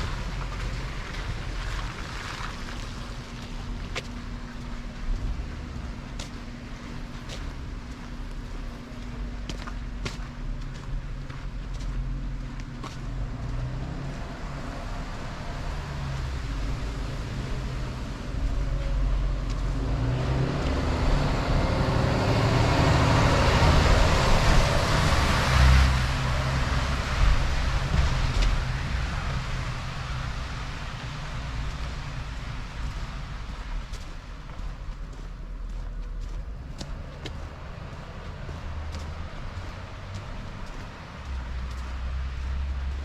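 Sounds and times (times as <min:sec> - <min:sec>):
low traffic rumble: 0:00.0 - 0:43.0
vehicle passing close by: 0:13.2 - 0:33.7.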